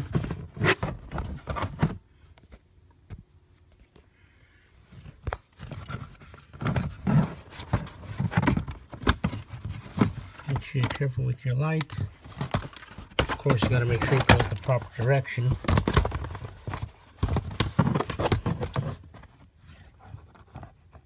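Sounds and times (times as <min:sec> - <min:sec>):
plastic cover knocking and clicking: 0:12.3 - 0:14.8.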